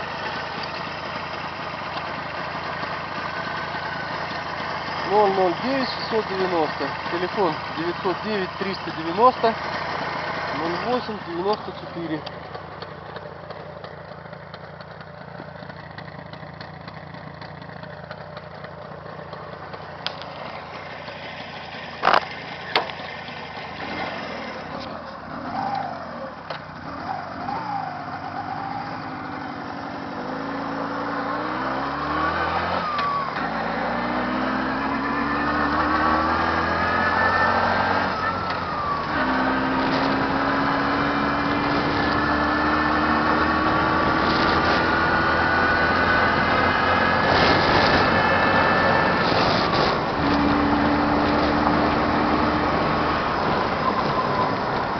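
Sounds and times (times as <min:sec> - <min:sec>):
car engine idling: 0:00.0 - 0:30.2
car accelerating through gears: 0:26.9 - 0:54.9.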